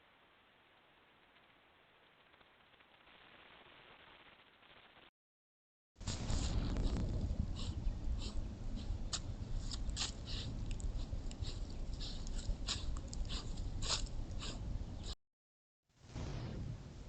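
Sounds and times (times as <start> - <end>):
steady low rumble: 6.0 - 15.2, 16.1 - 17.0.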